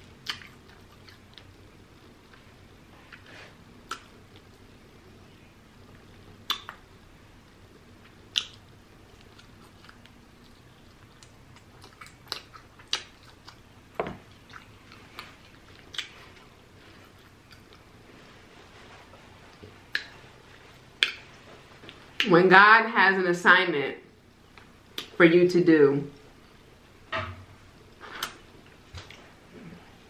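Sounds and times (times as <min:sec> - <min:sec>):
wet chewing mouth clicks: 0:00.1 - 0:01.6, 0:03.8 - 0:04.6, 0:06.5 - 0:06.8, 0:08.0 - 0:13.7, 0:14.3 - 0:17.9.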